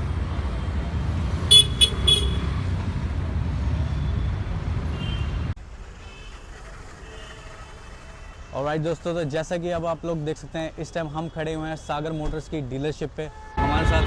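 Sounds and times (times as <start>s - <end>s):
street traffic rumbling: 0.0s - 10.2s, 13.6s - 14.0s
vehicle horn tooting: 1.5s - 2.7s, 13.6s - 14.0s.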